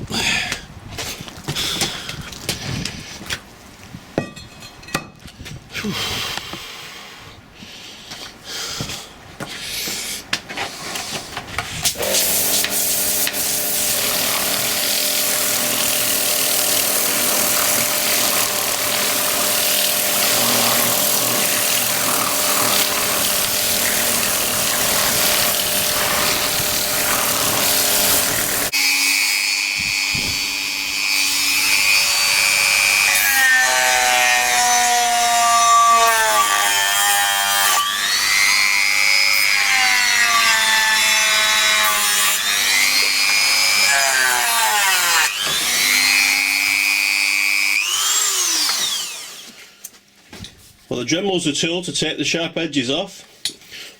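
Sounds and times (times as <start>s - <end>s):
grinding hiss on metal: 11.9s - 28.7s
rotary tool motor whine: 12.0s - 33.2s, 45.2s - 49.6s.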